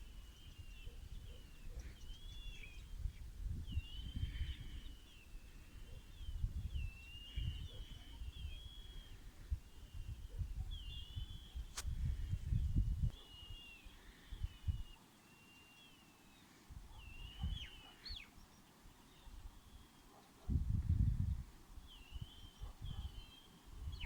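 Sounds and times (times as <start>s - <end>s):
bird singing whistled phrases: 13.1s - 16.2s, 17.0s - 18.3s.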